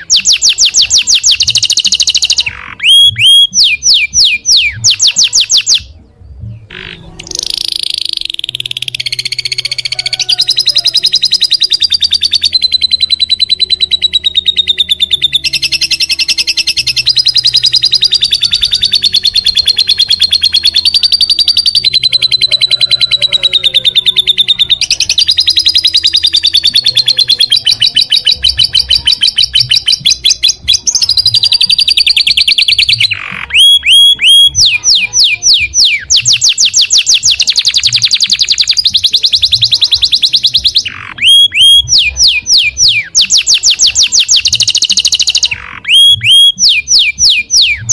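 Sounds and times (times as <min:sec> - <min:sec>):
songbird buzzy trill: 0:00.0 - 0:47.9.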